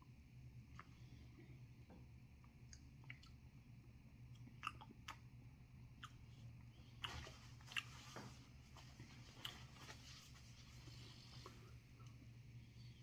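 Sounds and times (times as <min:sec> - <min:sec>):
steady low hum: 0:00.0 - 0:13.0
lip smacks and mouth clicks: 0:02.7 - 0:03.4, 0:04.3 - 0:05.3, 0:05.9 - 0:06.2.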